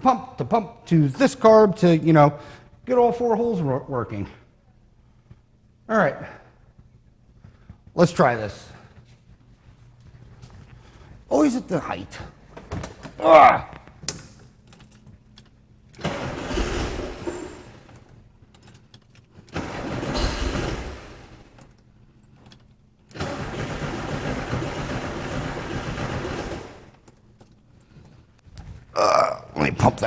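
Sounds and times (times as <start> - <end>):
starter cranking engine: 16.0 - 18.0, 19.5 - 21.7, 23.1 - 27.0.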